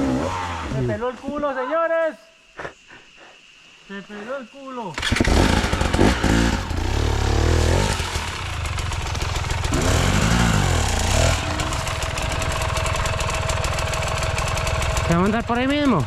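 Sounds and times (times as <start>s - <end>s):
dirt bike engine revving and idling: 0.0s - 0.9s, 5.0s - 16.0s.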